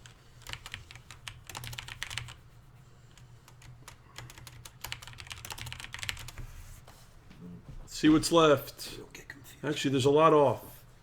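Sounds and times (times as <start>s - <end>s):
computer keyboard typing: 0.0s - 2.4s, 3.2s - 6.4s.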